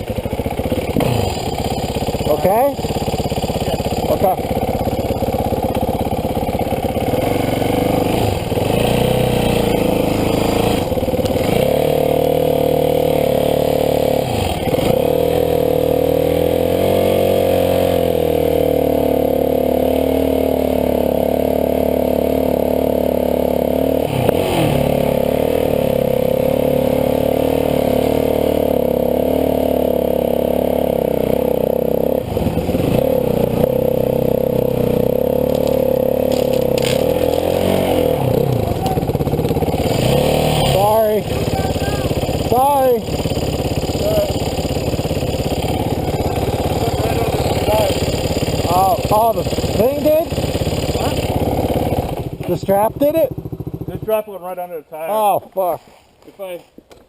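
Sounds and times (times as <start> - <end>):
dirt bike engine running: 0.0 - 56.6.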